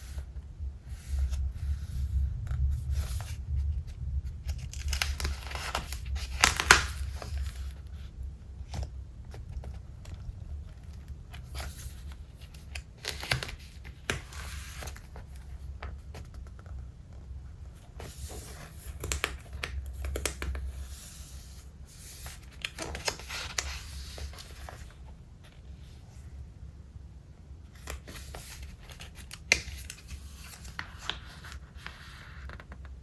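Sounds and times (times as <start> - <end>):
paper pages rustling: 4.4 - 16.7, 17.7 - 26.2, 27.8 - 32.8.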